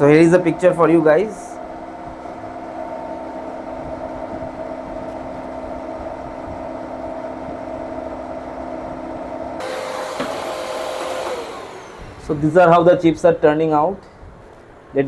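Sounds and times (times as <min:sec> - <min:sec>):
milling machine running: 0:06.2 - 0:13.1.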